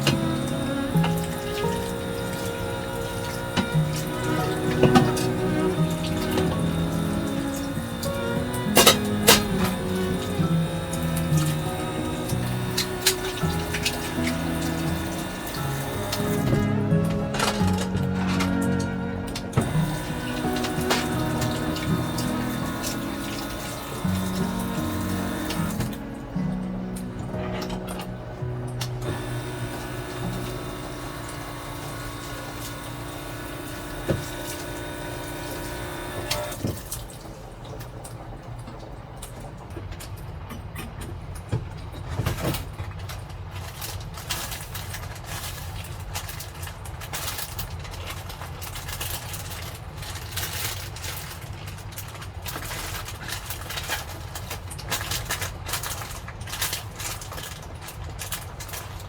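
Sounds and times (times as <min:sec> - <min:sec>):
music with held tones: 0:00.0 - 0:39.3
heavy rain beating on camper: 0:00.0 - 0:40.4.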